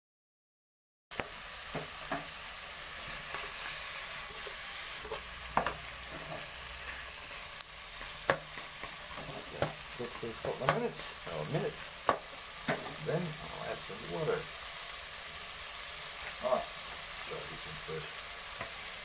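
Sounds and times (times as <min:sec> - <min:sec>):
food sizzling in a pot: 0:01.1 - 0:19.0
wooden spoon scraping food: 0:03.0 - 0:07.2.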